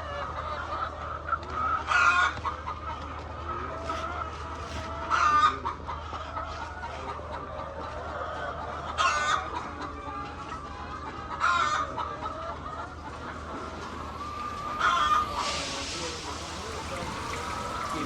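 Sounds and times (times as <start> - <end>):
hens clucking: 0.0 - 18.0
hen squawks: 12.8 - 18.0.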